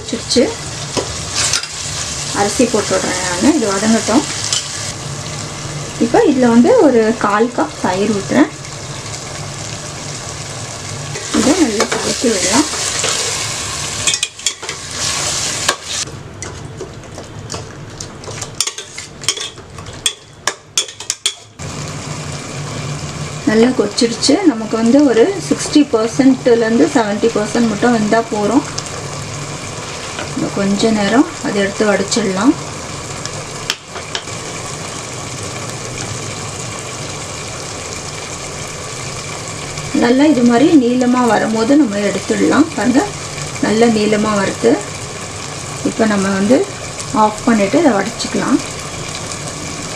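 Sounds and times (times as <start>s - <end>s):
gravy sizzling in a pan: 0.0s - 49.9s
rice boiling in a pot: 0.3s - 49.9s
spoon scraping a pan: 11.2s - 16.0s, 18.6s - 20.2s.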